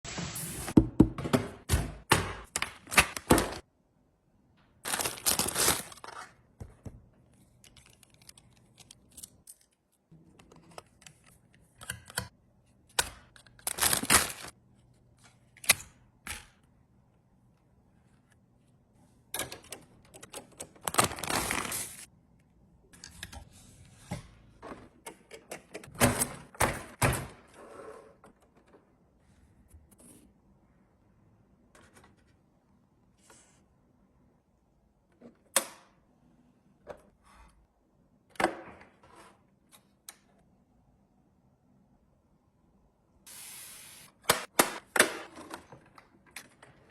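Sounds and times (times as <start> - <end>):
packaging rustling: 4.9 - 6.0, 13.6 - 14.5.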